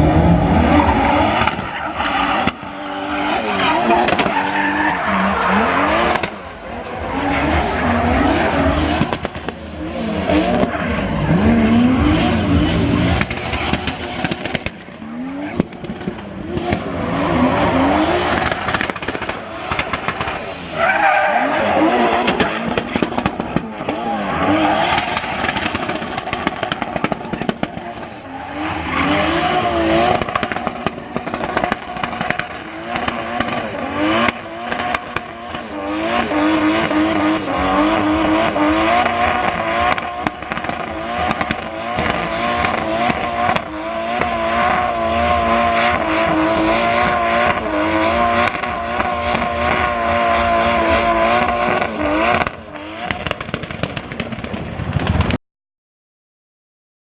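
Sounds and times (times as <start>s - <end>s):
car engines revving: 0.0s - 55.3s
tyre squeal: 16.8s - 22.7s, 28.0s - 30.5s.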